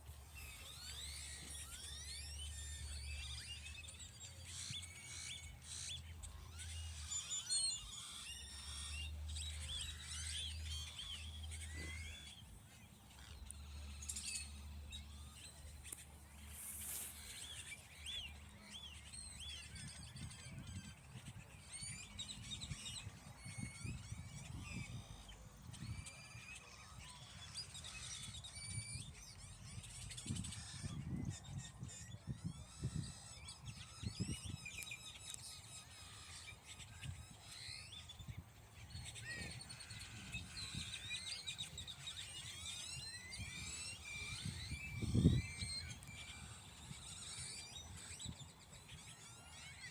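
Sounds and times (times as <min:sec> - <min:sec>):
songbirds chirping: 0:00.0 - 0:49.9.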